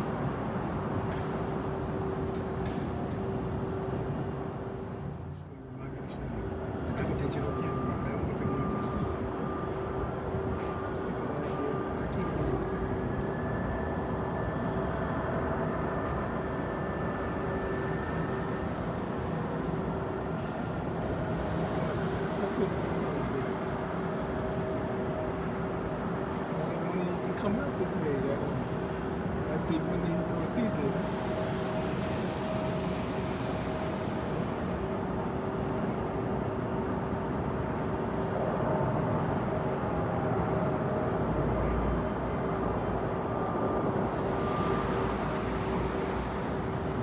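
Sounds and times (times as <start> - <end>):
jet engines running: 15.4 - 39.1, 42.5 - 47.0.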